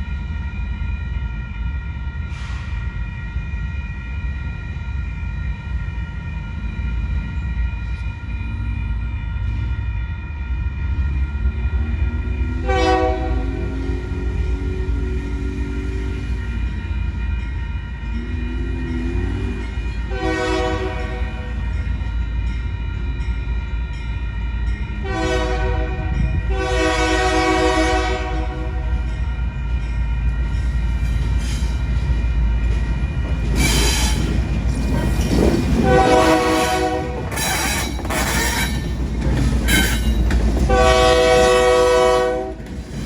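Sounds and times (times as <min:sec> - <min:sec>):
train rumbling on rails: 0:00.0 - 0:43.0
locomotive air horn blasts: 0:12.6 - 0:14.3, 0:20.1 - 0:21.5, 0:25.0 - 0:28.9, 0:35.8 - 0:38.7, 0:40.7 - 0:42.7.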